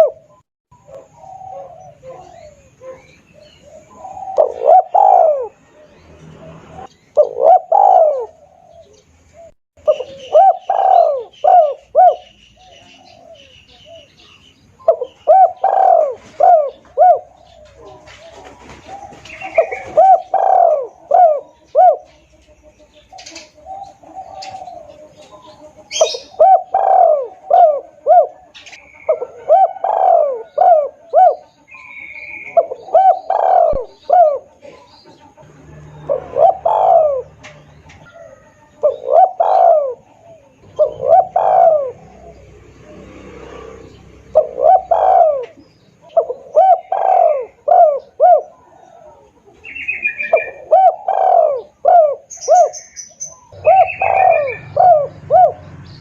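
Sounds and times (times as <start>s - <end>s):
dove cooing: 0.0s - 56.0s
small birds chirping: 0.0s - 56.0s.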